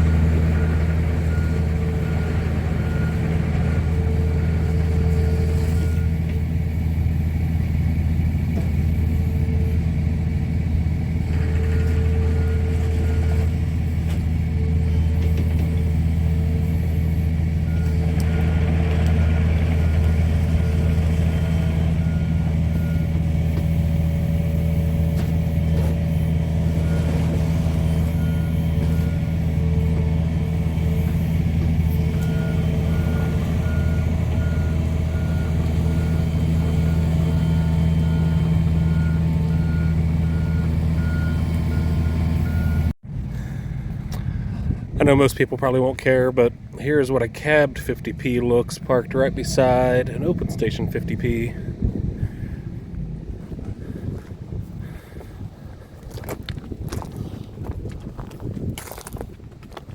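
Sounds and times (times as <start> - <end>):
diesel engine running: 0.0 - 59.9
backup alarm beeps: 0.3 - 6.2, 17.7 - 23.8, 26.8 - 31.2, 31.8 - 42.9.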